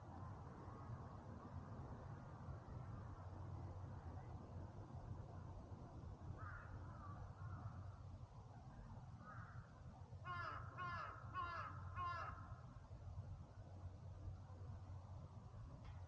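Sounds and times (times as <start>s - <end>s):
crow cawing: 6.4s - 7.7s, 10.2s - 12.5s.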